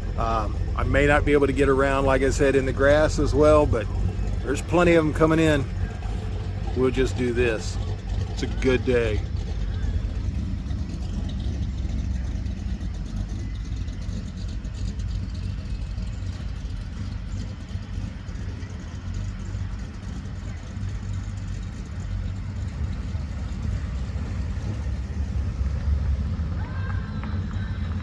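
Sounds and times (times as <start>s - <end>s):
car engines rumbling: 0.0s - 28.0s.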